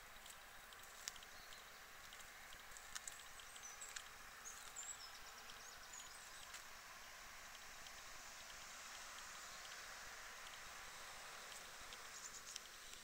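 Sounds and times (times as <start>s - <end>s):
small clicks: 0.2s - 5.6s, 11.4s - 13.0s
faint bird chirps: 10.5s - 13.0s.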